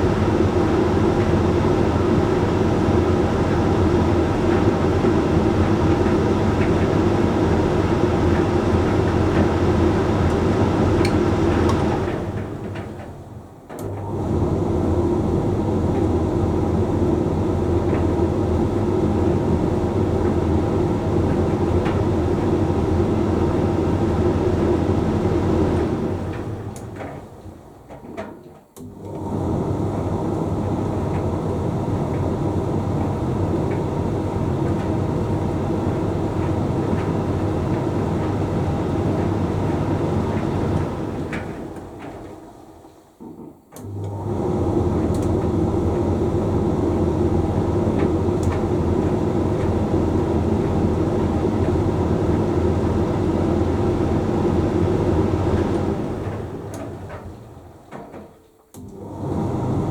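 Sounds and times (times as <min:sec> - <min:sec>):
tumble dryer running: 0:00.0 - 0:28.2, 0:28.8 - 0:59.9.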